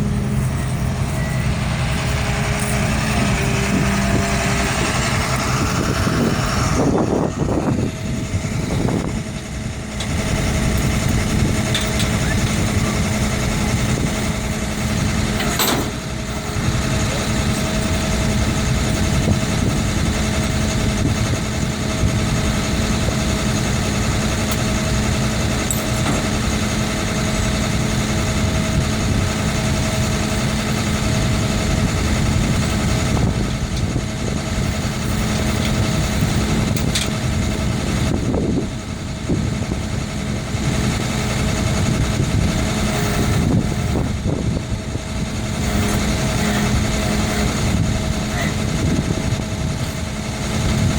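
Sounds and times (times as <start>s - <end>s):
vehicle engine idling: 0.0s - 50.9s.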